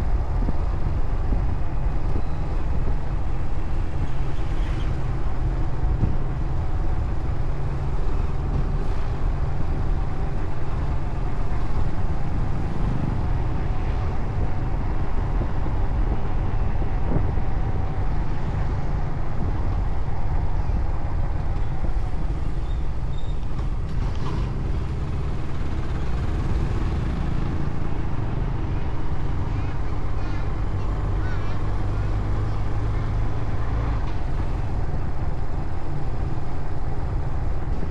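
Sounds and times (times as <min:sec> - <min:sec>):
road noise: 0:00.0 - 0:37.9
motorcycle engine: 0:21.6 - 0:29.5.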